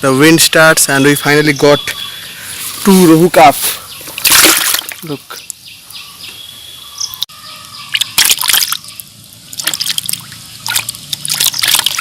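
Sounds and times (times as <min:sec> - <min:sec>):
water splashing and trickling: 0:02.4 - 0:05.6, 0:07.9 - 0:12.0.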